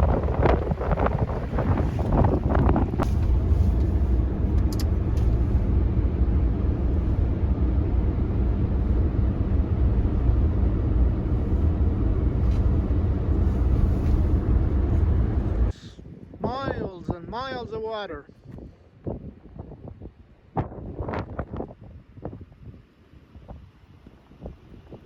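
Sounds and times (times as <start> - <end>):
vehicle driving rumble: 0.0 - 16.0
wind on microphone: 0.0 - 17.6, 18.3 - 25.0.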